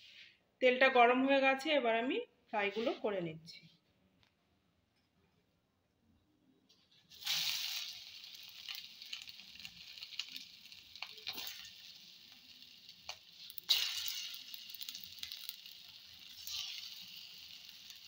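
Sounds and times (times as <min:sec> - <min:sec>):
batter frying in hot oil: 0:07.1 - 0:18.0.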